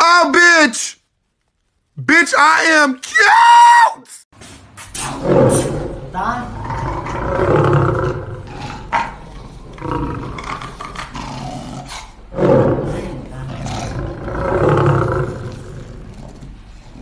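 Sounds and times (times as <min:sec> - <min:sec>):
dog growling: 0:05.0 - 0:17.0.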